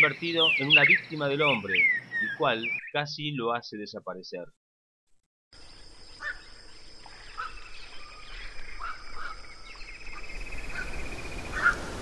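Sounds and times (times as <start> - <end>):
bird calls: 0.0 - 3.4, 5.6 - 12.0
steady outdoor hiss: 0.0 - 4.3, 5.6 - 12.0
rapid pulsing bird trill: 6.0 - 11.8.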